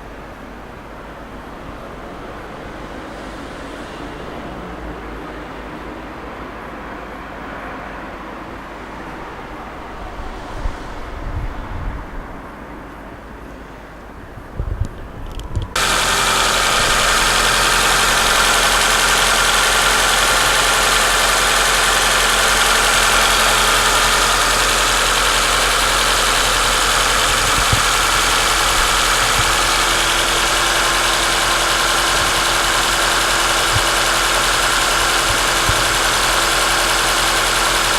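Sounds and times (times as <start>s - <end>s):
car engine idling: 15.8s - 37.9s.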